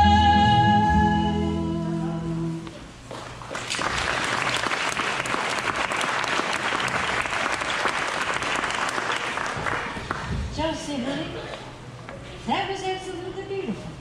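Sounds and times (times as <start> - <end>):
audience applause: 3.5 - 10.4.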